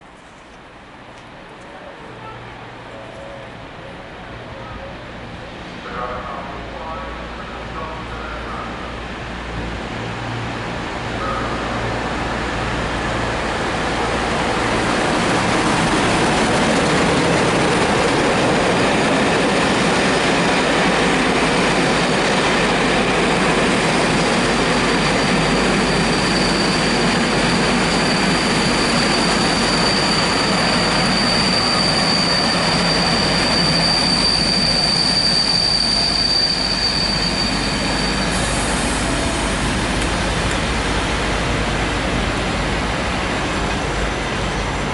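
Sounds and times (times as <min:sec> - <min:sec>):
train wheels rumbling on rail: 0:00.0 - 0:44.9
train brakes squealing: 0:24.0 - 0:40.0.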